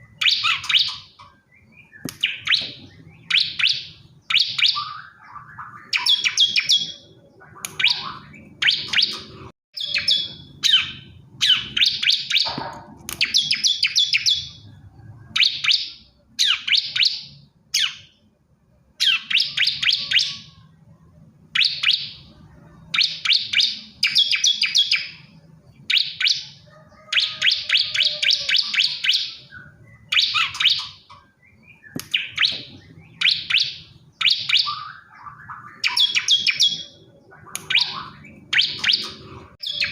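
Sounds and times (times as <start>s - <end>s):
bird singing rapid high notes: 0.0s - 18.3s, 27.2s - 39.9s.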